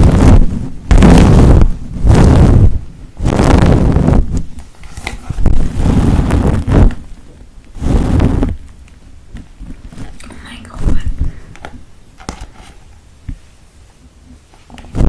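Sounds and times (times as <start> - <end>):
brush rasping on microphone: 7.8 - 8.6.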